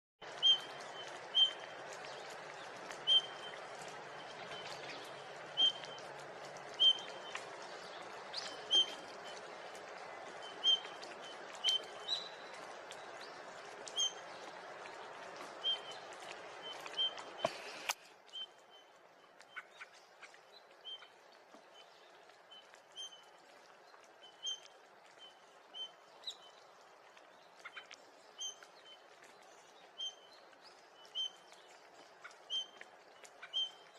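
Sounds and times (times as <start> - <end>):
bird whistled calls: 0.4 - 1.6.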